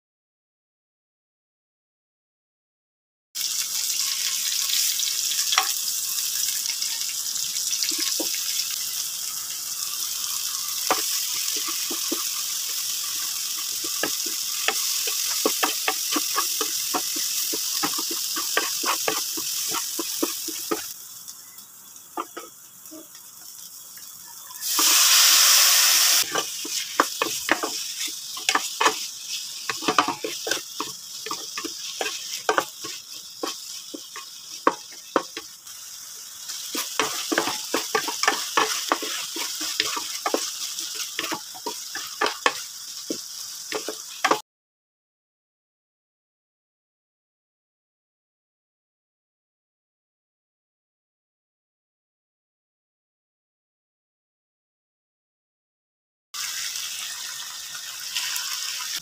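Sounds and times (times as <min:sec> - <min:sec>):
burst of sizzling meat: 0:03.4 - 0:44.4, 0:56.4 - 0:59.0
vegetables sizzling in oil: 0:03.4 - 0:44.4, 0:56.4 - 0:59.0
wooden spatula scraping pan: 0:24.8 - 0:35.4, 0:36.6 - 0:42.6.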